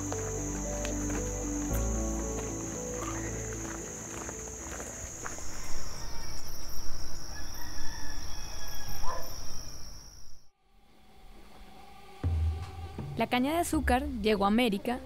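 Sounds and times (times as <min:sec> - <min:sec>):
high insect trill: 0:00.0 - 0:10.5.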